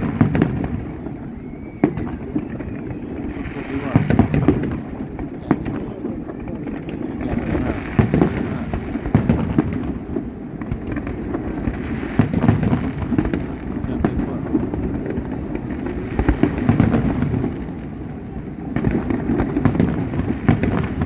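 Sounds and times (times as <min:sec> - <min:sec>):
fireworks crackling and banging: 0:00.0 - 0:21.0.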